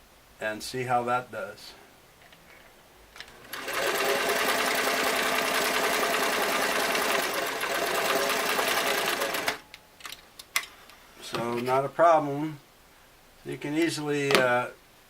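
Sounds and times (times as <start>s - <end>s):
sewing machine stitching: 3.2s - 9.6s.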